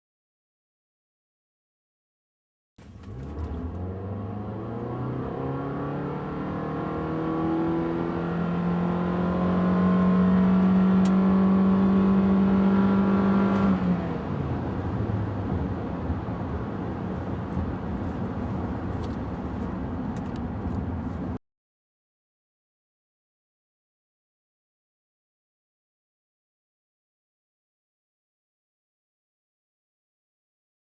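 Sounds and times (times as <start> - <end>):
car engine accelerating: 2.8 - 21.4
road and tyre noise: 2.8 - 21.4.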